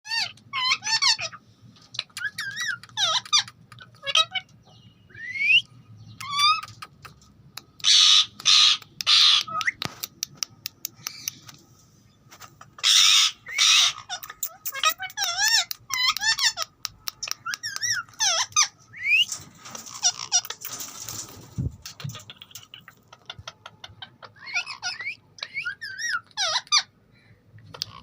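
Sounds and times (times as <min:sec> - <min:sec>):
parakeet whistling and chattering: 0:02.0 - 0:04.5, 0:05.1 - 0:07.2, 0:12.8 - 0:20.6, 0:22.0 - 0:26.9
parakeet harsh squawks: 0:07.8 - 0:09.7, 0:12.8 - 0:16.7, 0:24.2 - 0:26.9.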